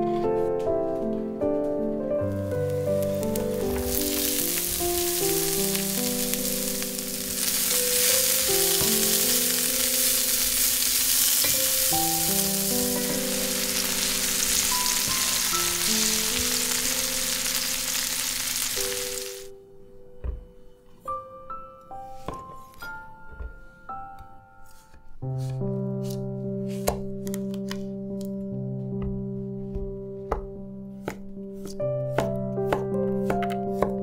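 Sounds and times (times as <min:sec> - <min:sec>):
garlic sizzling in oil: 0:02.3 - 0:19.5
wooden spatula stirring peppers: 0:02.4 - 0:16.8.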